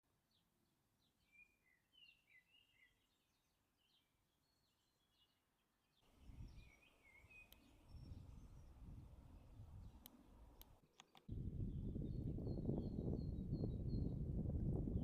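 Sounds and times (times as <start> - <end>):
songbirds chirping: 0.1 - 15.0
sharp click: 10.0 - 11.3.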